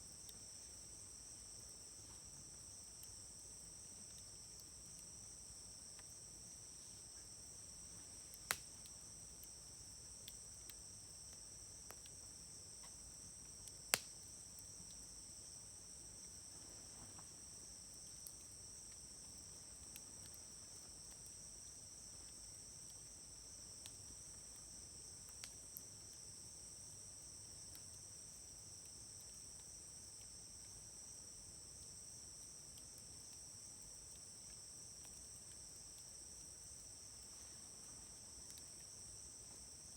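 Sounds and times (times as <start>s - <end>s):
wood fire crackling: 8.0s - 9.5s.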